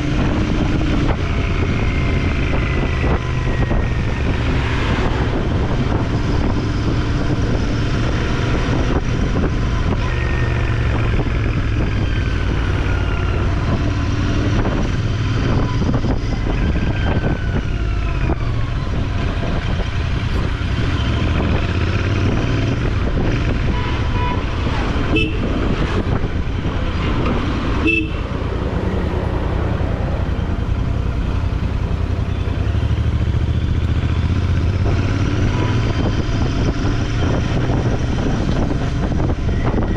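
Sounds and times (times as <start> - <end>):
wind rumble: 0.0 - 39.9
horn toots: 23.6 - 25.6, 27.8 - 28.3.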